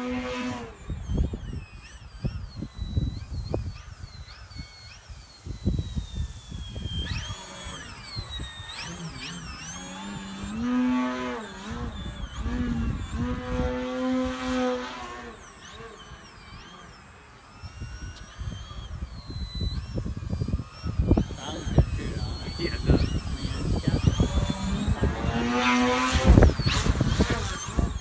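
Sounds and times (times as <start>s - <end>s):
model airplane motor whining: 0.0s - 28.0s
wind buffeting microphone: 0.0s - 28.0s.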